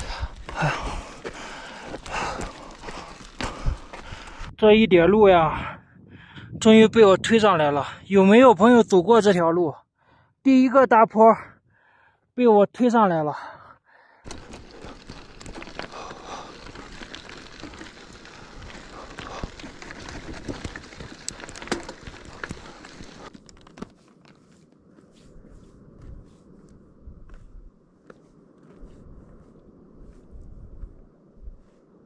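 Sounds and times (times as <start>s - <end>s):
footsteps crunching on rough road: 0.0s - 4.5s, 14.2s - 32.0s.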